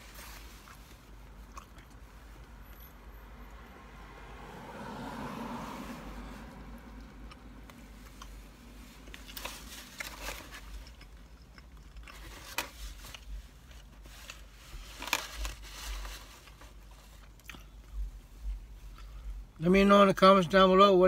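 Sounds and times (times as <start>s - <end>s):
chewing pizza: 0.4s - 2.4s, 9.1s - 13.4s, 17.2s - 18.1s.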